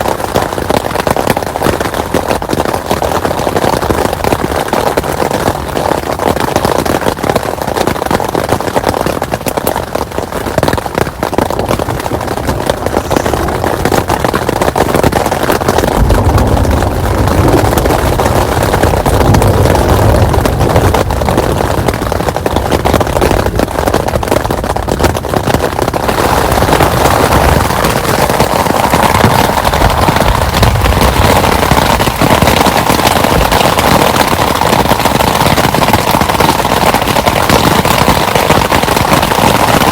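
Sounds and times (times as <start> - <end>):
heavy rain falling: 0.0 - 39.9
low rumble: 12.4 - 33.5.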